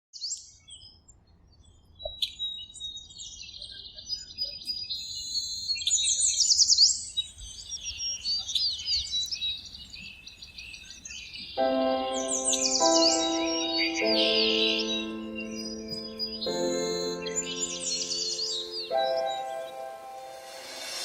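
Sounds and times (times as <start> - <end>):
songbirds chirping and trilling: 0.2 - 21.0.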